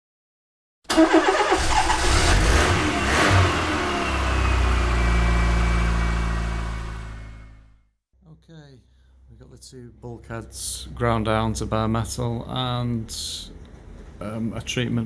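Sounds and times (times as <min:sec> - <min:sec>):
car engine idling: 0:00.9 - 0:07.7
car engine starting and revving: 0:00.9 - 0:07.7.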